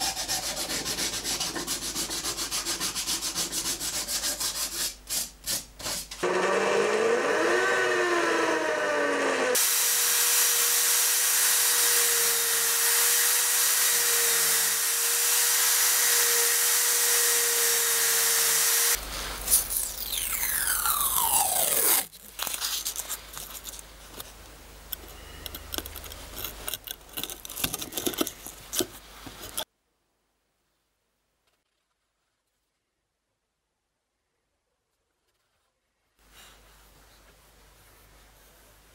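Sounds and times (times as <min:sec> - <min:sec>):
sandpaper rubbing on wood: 0:00.0 - 0:06.2
electric drill whining: 0:06.2 - 0:19.0.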